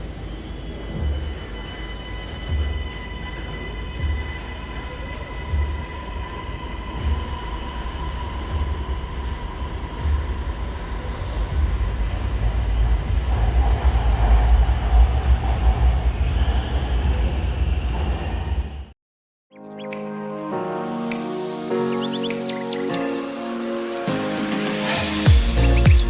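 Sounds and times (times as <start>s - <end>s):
electric train rumbling: 0.0s - 18.9s.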